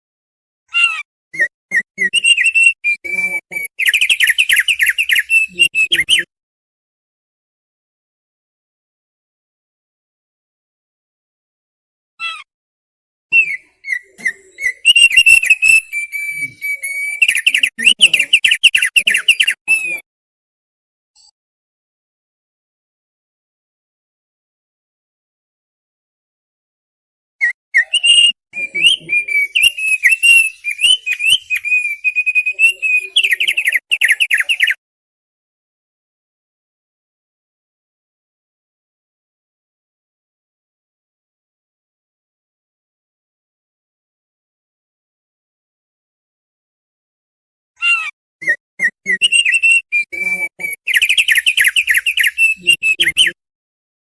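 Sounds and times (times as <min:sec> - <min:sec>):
bird singing chirps and whistles: 0:01.4 - 0:06.3, 0:13.4 - 0:20.0, 0:27.4 - 0:34.8, 0:48.4 - 0:53.4.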